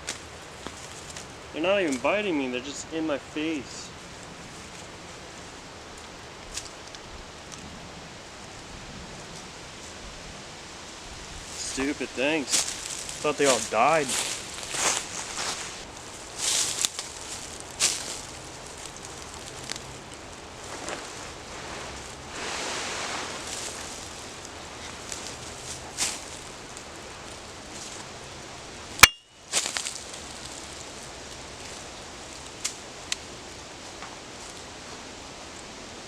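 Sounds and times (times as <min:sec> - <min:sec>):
rustling: 0:11.2 - 0:35.1.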